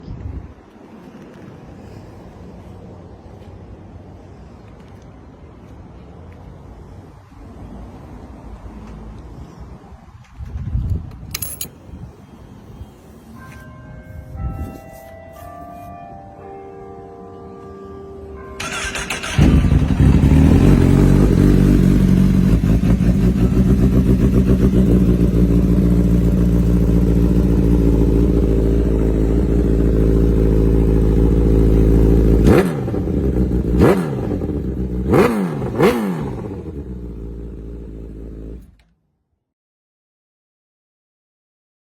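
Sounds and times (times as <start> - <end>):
motorcycle engine idling and revving: 18.6 - 38.9.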